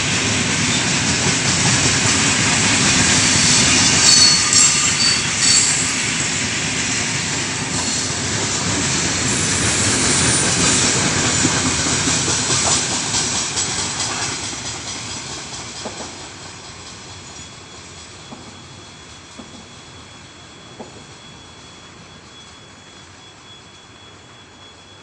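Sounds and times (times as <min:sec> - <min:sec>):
freight train wheels clattering: 0:00.0 - 0:19.9.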